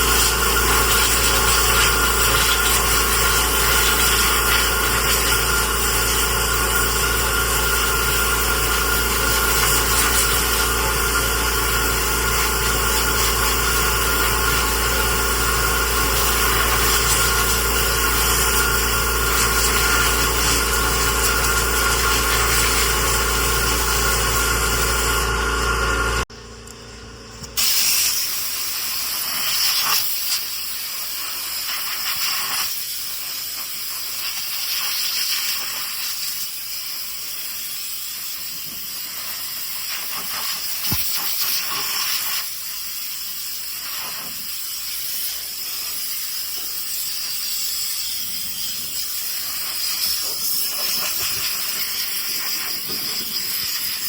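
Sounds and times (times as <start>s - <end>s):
compressed air hissing: 0.0s - 26.3s, 27.5s - 54.0s
steady machine hum: 0.0s - 29.2s.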